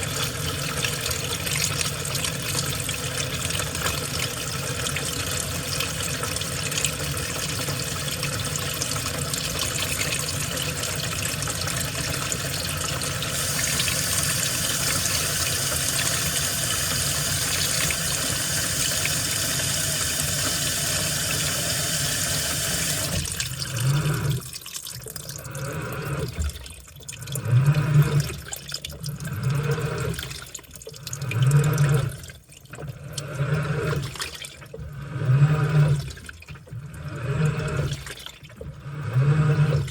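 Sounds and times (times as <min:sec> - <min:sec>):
water rushing into washing machine: 0:00.0 - 0:39.9
water sloshing in drum: 0:23.0 - 0:39.9
low motor hum: 0:34.8 - 0:39.9.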